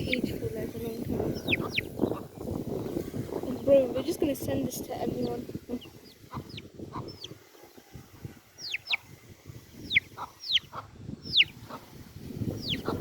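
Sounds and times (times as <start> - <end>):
baby chick peeping: 0.0 - 13.0.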